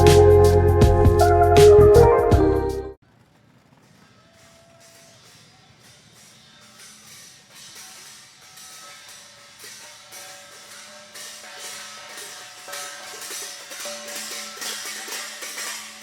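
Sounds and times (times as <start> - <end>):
percussion hits: 0.0 - 2.8, 3.6 - 16.0
held melodic notes: 0.0 - 3.0.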